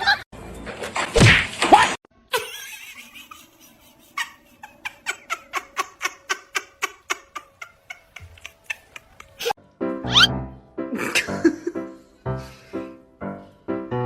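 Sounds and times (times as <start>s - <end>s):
person laughing: 2.3s - 9.6s, 10.9s - 11.9s.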